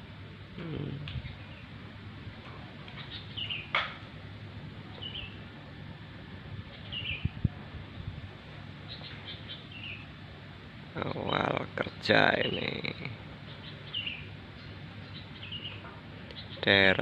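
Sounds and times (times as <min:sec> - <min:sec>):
outdoor background hum: 0:00.0 - 0:17.0
small bird chirping: 0:02.9 - 0:03.8, 0:04.9 - 0:05.4, 0:06.7 - 0:07.4, 0:08.8 - 0:10.1, 0:13.4 - 0:16.7.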